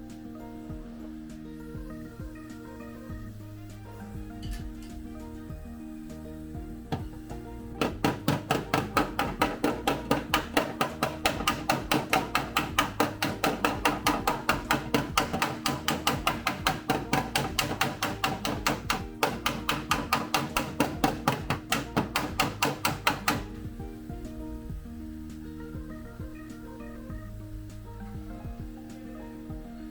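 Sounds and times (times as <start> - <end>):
background music: 0.0 - 29.9
hammer striking sheet steel: 6.9 - 23.6.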